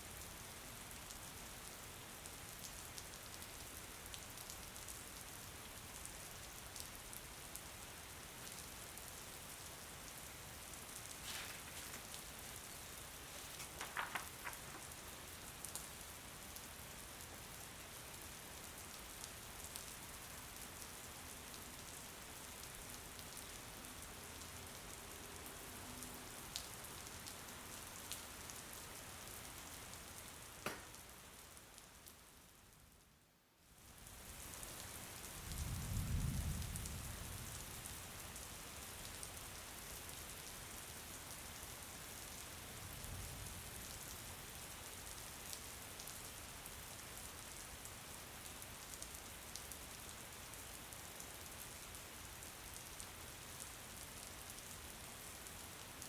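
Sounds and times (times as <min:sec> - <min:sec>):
rain falling: 0:00.0 - 0:56.0
rain drop taps: 0:13.6 - 0:14.9, 0:30.6 - 0:31.1.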